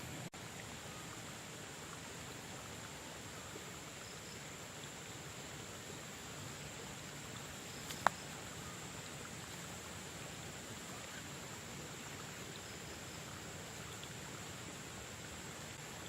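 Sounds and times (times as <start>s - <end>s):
high-pitched insect trilling: 7.5s - 9.7s.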